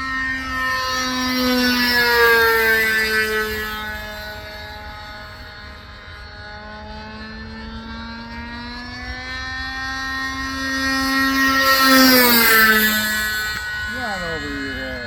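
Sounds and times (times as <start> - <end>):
model plane engine droning: 0.0 - 15.0.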